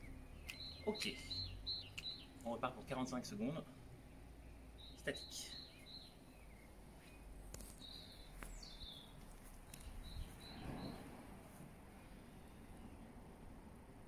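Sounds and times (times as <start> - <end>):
faint bird chirps: 0.0 - 2.4, 4.2 - 11.1
soft rustle: 6.7 - 12.3.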